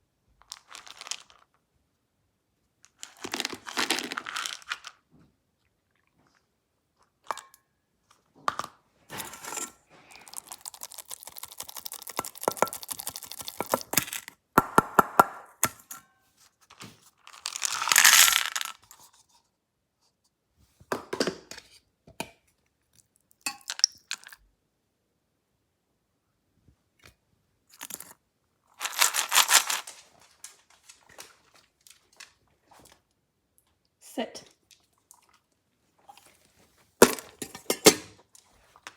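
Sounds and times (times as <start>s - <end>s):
dry dog food rattling into bowl: 0.4s - 1.5s, 2.9s - 5.0s, 9.1s - 14.3s, 17.2s - 19.0s, 27.8s - 33.0s
packaging crinkling: 10.1s - 13.9s, 28.8s - 32.4s.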